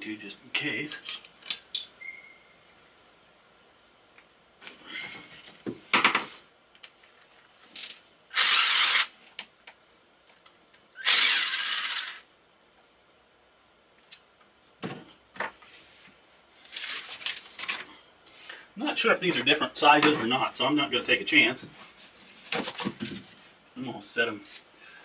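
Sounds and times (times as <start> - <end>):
power tool bursts: 8.3 - 9.2, 11.0 - 12.3.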